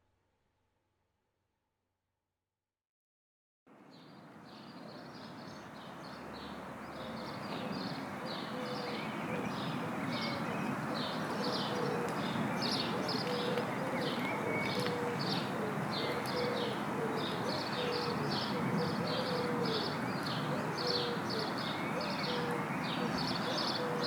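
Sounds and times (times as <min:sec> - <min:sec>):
low cooing calls: 0:06.9 - 0:24.0.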